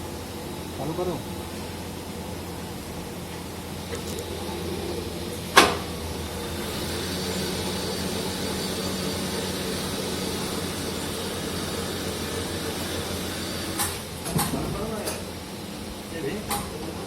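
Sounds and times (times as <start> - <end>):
machine humming with high whine: 0.0 - 16.4
machine sharp clack: 13.5 - 15.2.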